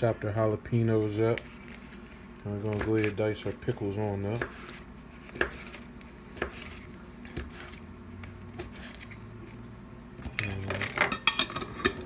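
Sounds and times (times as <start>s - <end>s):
knife chopping on cutting board: 2.6s - 9.1s.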